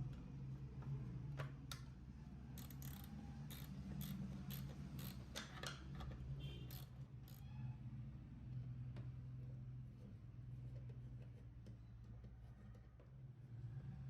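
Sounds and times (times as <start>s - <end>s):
light mechanical clicks and taps: 0.8s - 1.9s.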